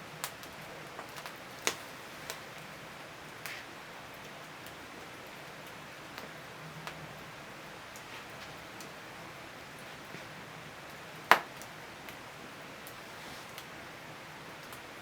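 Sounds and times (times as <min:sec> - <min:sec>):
firewood crackling and popping: 0:00.0 - 0:15.0
fire hissing: 0:01.1 - 0:03.8, 0:12.9 - 0:13.9.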